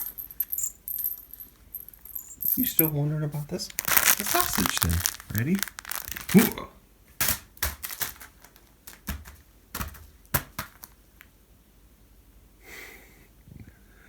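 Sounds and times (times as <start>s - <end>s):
crinkly cat toy rustling: 0.0s - 6.6s, 7.4s - 10.1s.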